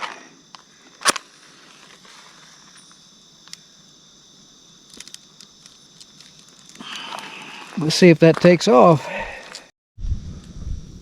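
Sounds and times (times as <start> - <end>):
crickets chirping: 0.0 - 11.0
faint clicks and crackles: 4.9 - 7.8.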